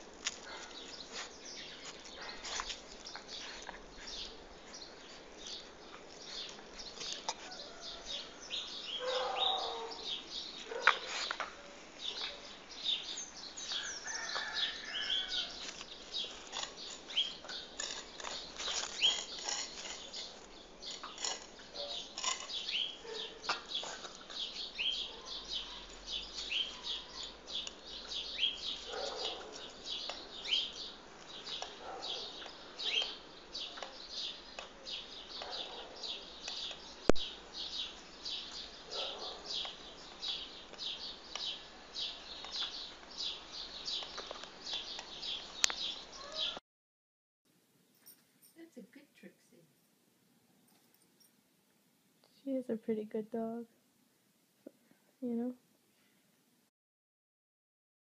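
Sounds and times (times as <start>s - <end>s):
birds chirping: 0.0s - 46.6s.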